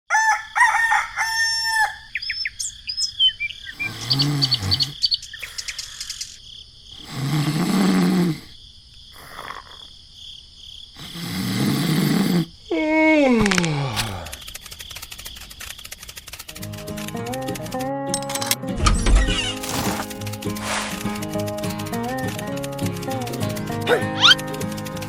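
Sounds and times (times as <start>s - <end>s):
rooster crowing: 0.1s - 2.2s
small birds chirping: 2.0s - 8.0s, 19.0s - 25.0s
low drawn-out animal calls: 23.8s - 24.5s.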